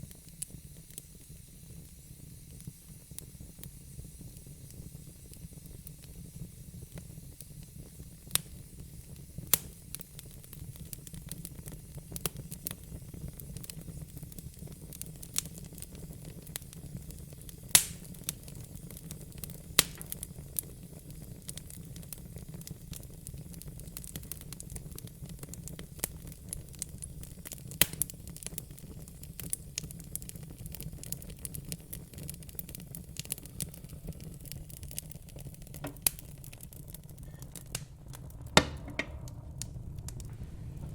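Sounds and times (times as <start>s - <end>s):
wood fire crackling and popping: 0.0s - 40.9s
low rumble and hiss: 33.4s - 40.9s.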